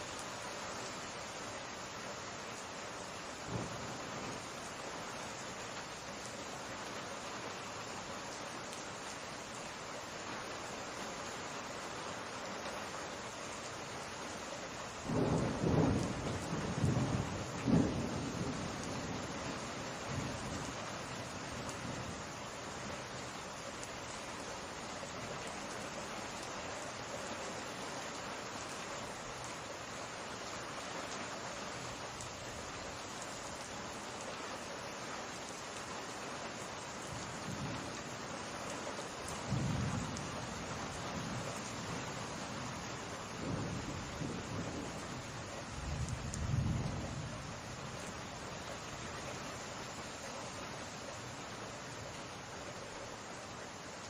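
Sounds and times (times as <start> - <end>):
steady rain falling: 0.0 - 54.0
distant thunder rumbling: 15.1 - 19.3, 39.4 - 40.5, 43.4 - 47.4.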